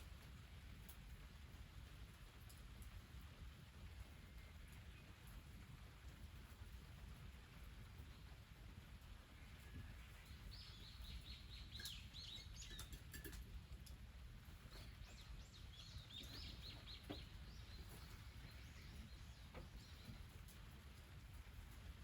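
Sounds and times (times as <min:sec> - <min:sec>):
bird chirping: 0:10.1 - 0:13.4, 0:14.5 - 0:20.4.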